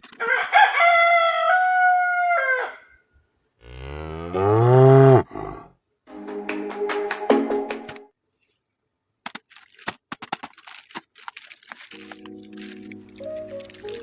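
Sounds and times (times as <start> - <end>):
cow mooing: 3.6 - 5.7
high held animal call: 3.7 - 5.7
sharp clicks: 9.2 - 14.0.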